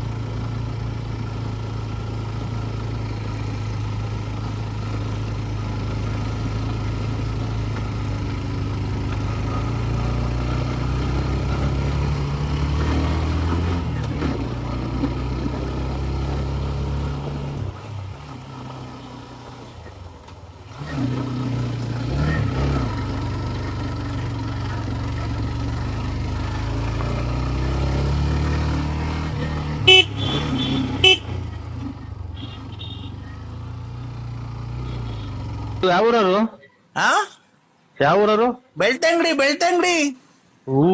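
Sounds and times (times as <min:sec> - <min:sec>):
scooter engine droning: 0:00.0 - 0:33.5
scooter horn toots: 0:29.8 - 0:31.4, 0:32.3 - 0:33.2, 0:34.8 - 0:35.4.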